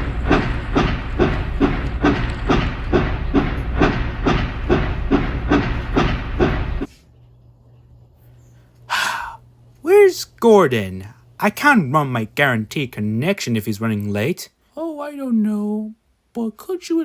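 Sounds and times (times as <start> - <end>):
steam locomotive chuffing: 0.0 - 6.9
low running rumble: 0.0 - 8.7.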